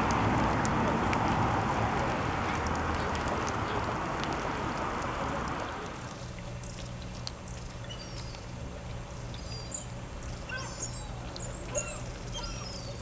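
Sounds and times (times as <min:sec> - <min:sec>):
faint high bird chirps: 0:07.8 - 0:08.5, 0:09.3 - 0:09.9, 0:10.5 - 0:13.0.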